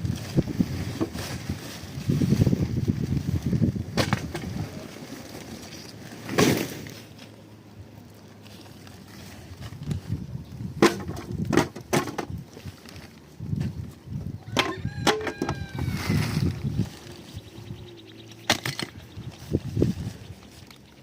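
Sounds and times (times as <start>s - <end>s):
wind noise on microphone: 0.0s - 4.8s, 9.3s - 20.8s
knocks and cracks: 10.8s - 12.4s.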